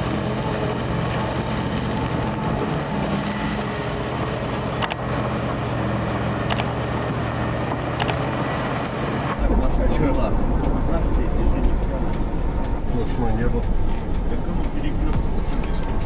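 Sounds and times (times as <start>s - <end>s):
truck engine droning: 0.0s - 16.0s
sharp clicks: 4.8s - 5.0s, 6.4s - 9.4s.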